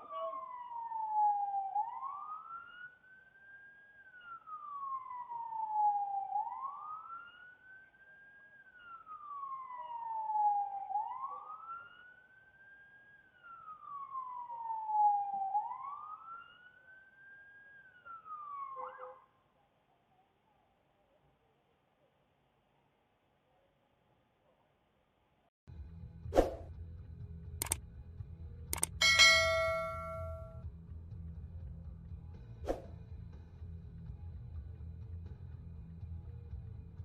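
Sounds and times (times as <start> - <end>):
emergency siren wailing: 0.0 - 18.9.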